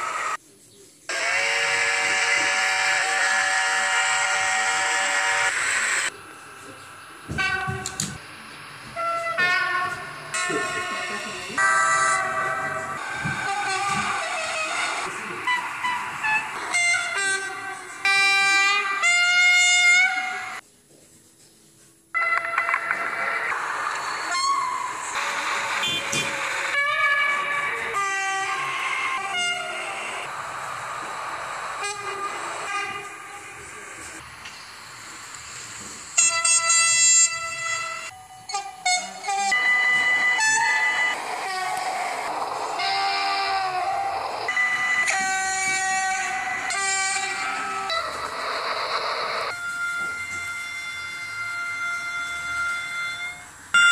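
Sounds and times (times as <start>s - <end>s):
train horn blasts: 1.1s - 6.0s, 7.3s - 8.2s, 8.9s - 20.6s, 22.2s - 22.8s, 25.7s - 30.4s, 31.7s - 33.8s, 36.2s - 48.4s, 49.2s - 53.9s
train horn chord blasts: 9.0s - 20.6s
steady rumble: 23.0s - 36.2s, 39.9s - 49.6s
short horn toots: 25.8s - 26.4s.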